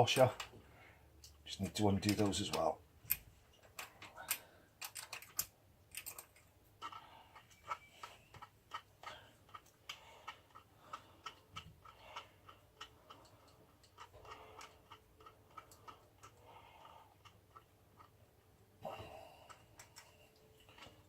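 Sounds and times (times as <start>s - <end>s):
metal parts rattling: 2.0s - 9.6s.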